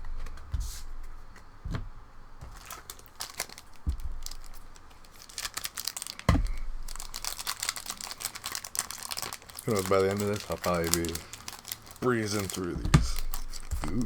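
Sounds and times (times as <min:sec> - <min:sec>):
dull thumps on table: 0:00.0 - 0:02.8, 0:03.5 - 0:04.8, 0:06.3 - 0:06.9, 0:12.7 - 0:14.0
foil wrapper tearing and crinkling: 0:02.4 - 0:14.0.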